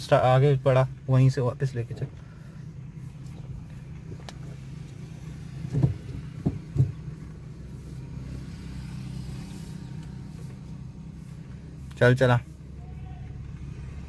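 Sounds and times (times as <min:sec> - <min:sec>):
car engine humming: 0:00.0 - 0:14.0
short thuds: 0:03.1 - 0:07.4.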